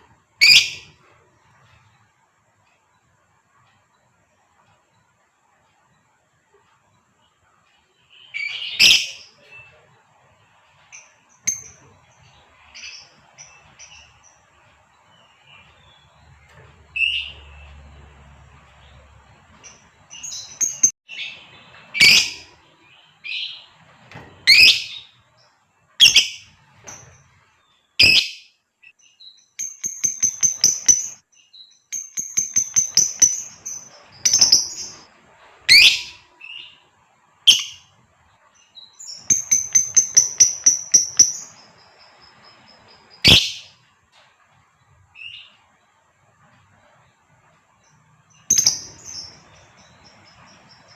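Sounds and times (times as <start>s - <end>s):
lovebird chattering chirps: 0.4s - 0.9s, 19.7s - 21.3s, 22.0s - 22.5s, 24.5s - 25.0s, 26.0s - 26.5s, 28.0s - 28.5s, 29.4s - 31.2s, 31.8s - 35.1s, 35.7s - 36.7s, 37.5s - 37.8s, 39.0s - 43.7s, 48.4s - 50.9s.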